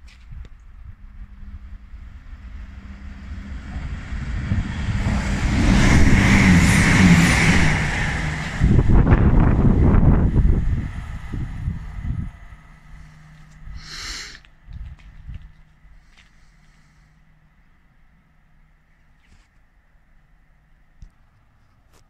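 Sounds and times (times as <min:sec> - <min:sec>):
gusty low rumble: 0:00.0 - 0:16.2
wheel-on-rail rumble and hiss: 0:00.0 - 0:20.4
train engine approaching: 0:00.0 - 0:21.0.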